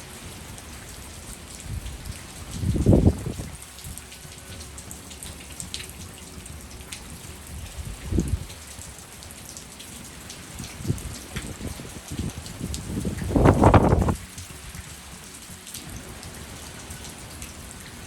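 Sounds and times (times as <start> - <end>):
heavy rain falling: 0.0 - 18.0
wind buffeting microphone: 0.3 - 4.2, 6.5 - 9.0, 10.5 - 15.3.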